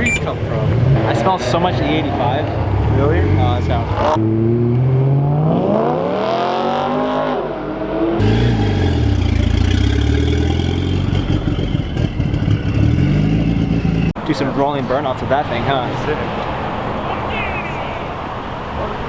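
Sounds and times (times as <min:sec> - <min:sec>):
deeper uneven engine sound: 0:00.0 - 0:05.9
car engine revving hard: 0:00.0 - 0:14.2.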